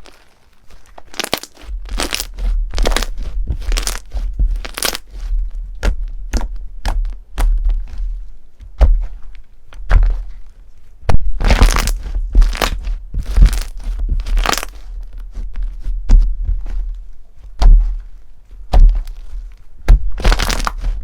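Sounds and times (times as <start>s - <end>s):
crunchy slime squeezed: 0.0s - 5.3s, 11.3s - 15.0s, 20.0s - 21.0s.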